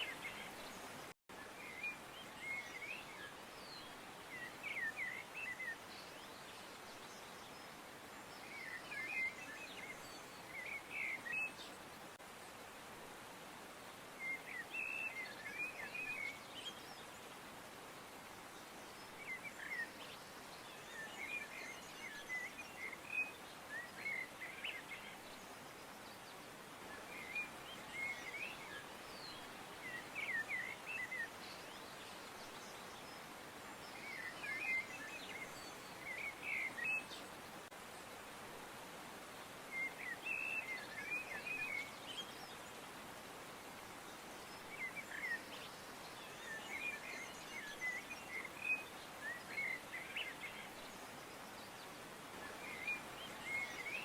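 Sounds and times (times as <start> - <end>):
steady outdoor hiss: 0.0 - 54.0
small birds chirping: 18.3 - 54.0.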